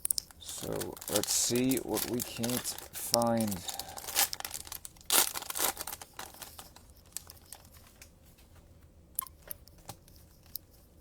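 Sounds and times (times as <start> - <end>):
plastic wrapping crinkling: 0.2 - 8.2
plastic wrap ripping: 0.4 - 8.0.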